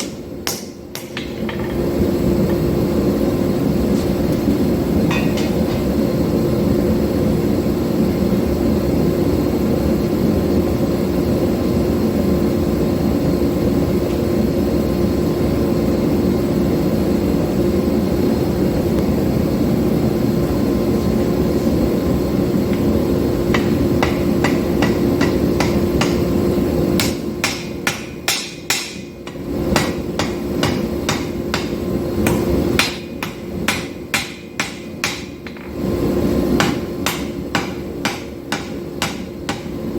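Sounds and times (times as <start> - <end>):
power hammer pounding hot steel: 0.0 - 2.0, 5.0 - 6.0, 23.5 - 39.9
ringing hammer strikes on steel: 5.1 - 5.7, 23.5 - 26.3, 27.0 - 35.6, 36.6 - 39.8.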